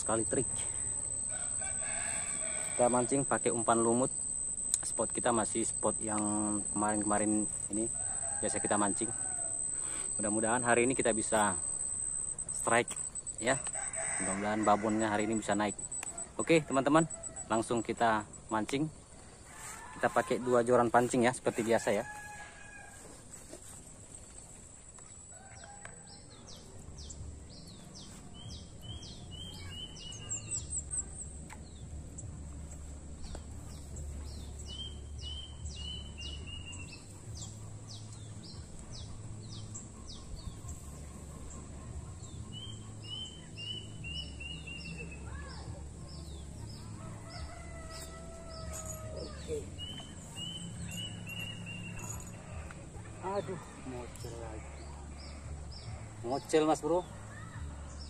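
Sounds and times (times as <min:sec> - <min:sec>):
rooster crowing: 0:00.0 - 0:12.1, 0:13.4 - 0:18.0, 0:19.4 - 0:23.7, 0:25.2 - 0:26.6, 0:46.7 - 0:54.8
small bird singing: 0:00.0 - 0:14.3, 0:25.0 - 0:32.3, 0:33.2 - 0:58.0.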